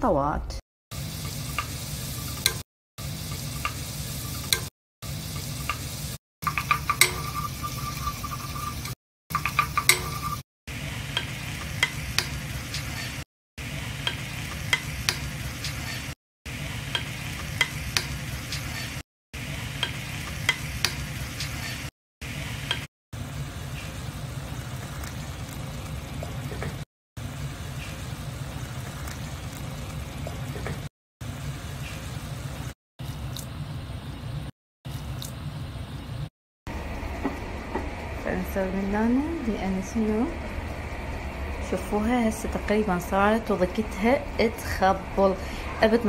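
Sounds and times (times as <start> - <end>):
vegetables sizzling in a pan: 0.9 - 32.8
wooden spoon scraping a pan: 6.4 - 10.4
spoon tapping: 6.5 - 8.7, 9.4 - 10.4.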